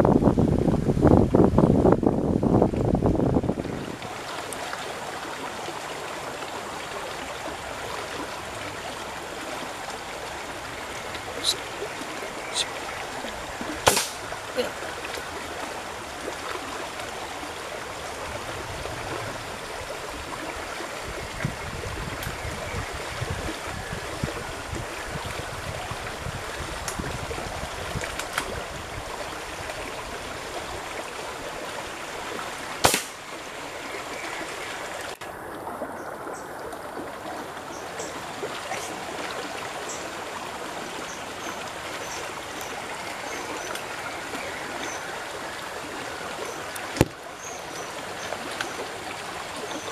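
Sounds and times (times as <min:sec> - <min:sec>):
river rushing: 0:00.0 - 0:49.9
sharp click: 0:13.9 - 0:14.2.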